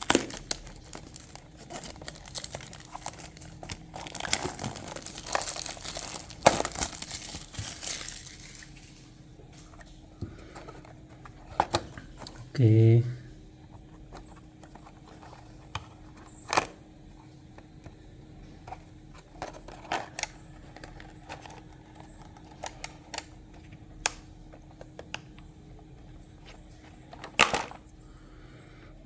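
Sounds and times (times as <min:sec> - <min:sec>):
packaging clicks and rustles: 0:00.0 - 0:12.5, 0:13.6 - 0:28.0
faint steady hum: 0:00.0 - 0:29.0.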